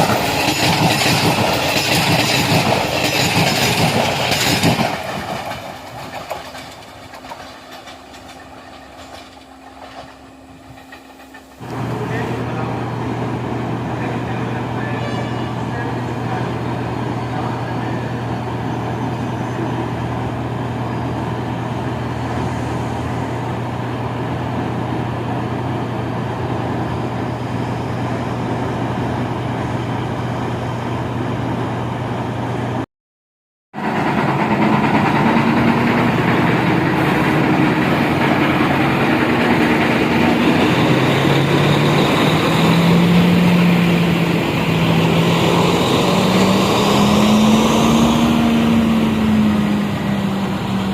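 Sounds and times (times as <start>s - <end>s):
train diesel engine humming: 0.0s - 32.8s, 33.8s - 50.9s.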